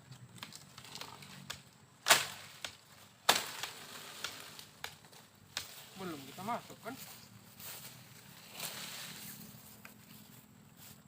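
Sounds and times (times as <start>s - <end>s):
sharp cracks: 0.4s - 5.8s.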